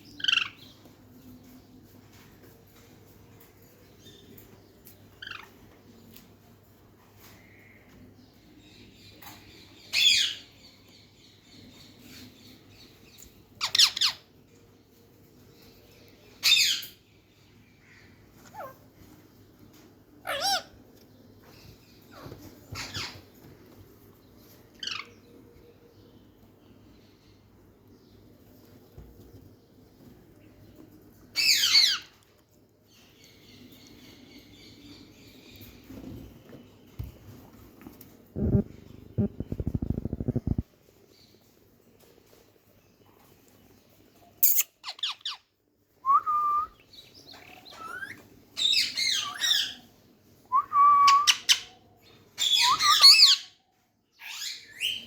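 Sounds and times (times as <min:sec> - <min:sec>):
parrot squawking: 0:20.3 - 0:20.7, 0:38.4 - 0:40.6.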